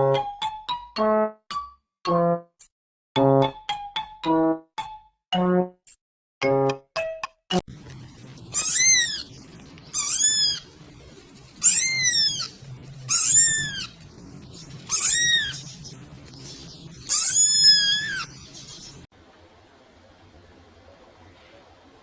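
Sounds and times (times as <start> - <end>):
cat meowing: 8.6 - 9.3, 10.0 - 10.7, 11.6 - 14.0, 14.9 - 15.6, 17.1 - 18.3.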